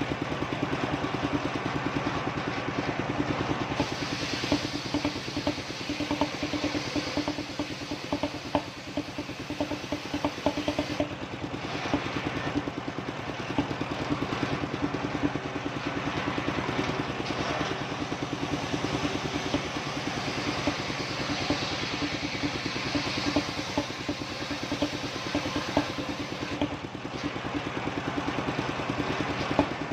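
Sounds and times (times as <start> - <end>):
circular saw engine chugging: 0.0 - 29.9
sharp knocks: 4.5 - 11.2.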